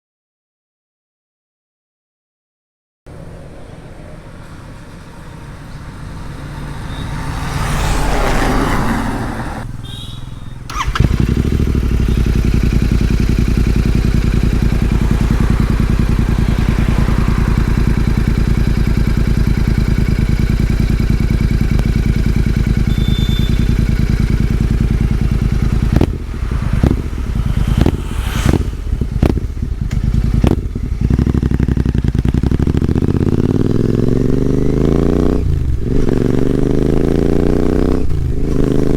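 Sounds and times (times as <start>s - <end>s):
motorcycle engine idling: 9.7s - 37.0s.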